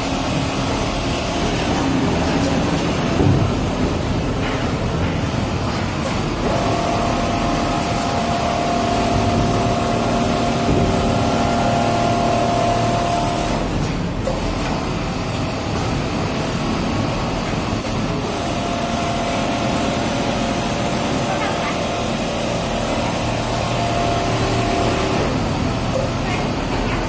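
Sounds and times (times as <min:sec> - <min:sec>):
sewing machine running: 0:06.2 - 0:13.8, 0:16.5 - 0:26.6.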